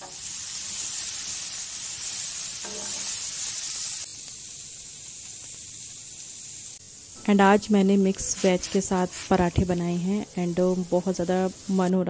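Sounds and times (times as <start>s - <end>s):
hiss of liquid heating in saucepan: 0.0s - 12.0s
vegetables sizzling in a pan: 0.0s - 12.0s
spoon stirring in a pan: 2.6s - 3.1s.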